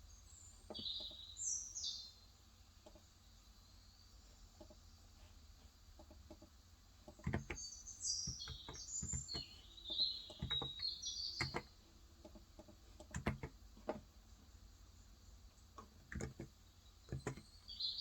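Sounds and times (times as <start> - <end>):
small bird twittering song: 0.0 - 5.0, 6.3 - 13.5, 14.3 - 18.0
keyboard typing: 7.1 - 7.6, 8.2 - 14.0, 15.8 - 16.5, 17.1 - 17.5.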